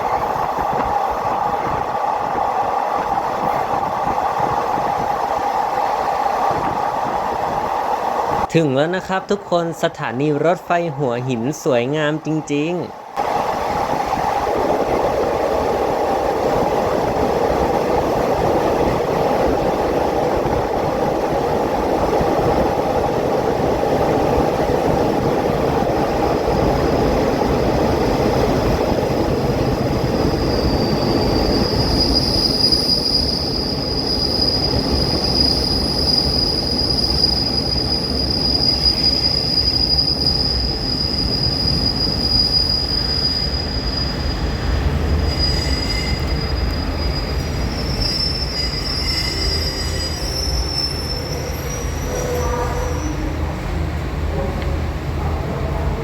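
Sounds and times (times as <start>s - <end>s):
high metallic squeal: 30.2s - 53.3s.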